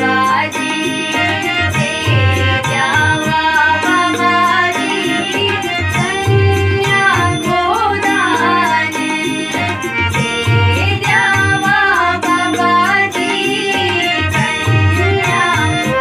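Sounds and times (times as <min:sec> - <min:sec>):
instrumental accompaniment: 0:00.0 - 0:16.0
person singing folk song: 0:00.0 - 0:16.0
low drum beats: 0:01.6 - 0:03.8.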